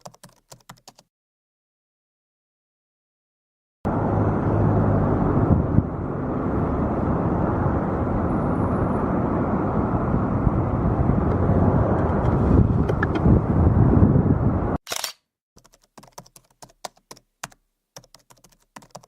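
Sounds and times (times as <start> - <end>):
jet airliner engines rumbling: 3.9 - 14.8.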